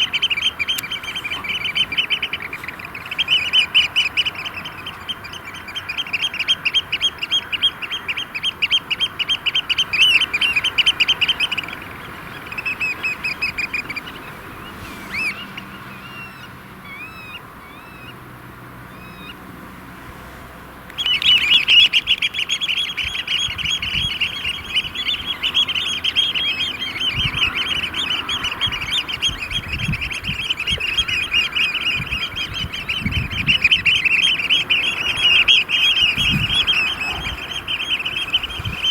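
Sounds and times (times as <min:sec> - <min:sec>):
oystercatchers piping: 0:00.0 - 0:19.6, 0:20.8 - 0:38.9.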